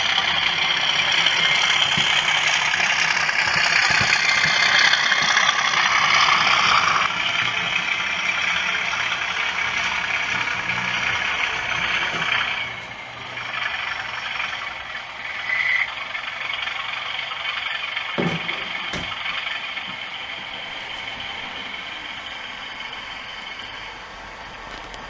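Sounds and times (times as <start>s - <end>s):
low hum: 0.0s - 25.0s
model locomotive running noise: 0.0s - 25.0s
dull knocks: 18.2s - 19.2s.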